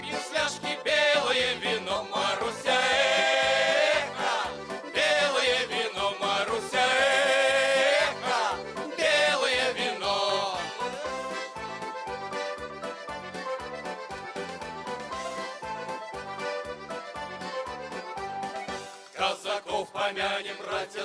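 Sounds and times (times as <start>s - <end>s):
folk choir singing: 0.0s - 11.1s, 19.1s - 21.0s
rhythmic accompaniment: 0.0s - 21.0s.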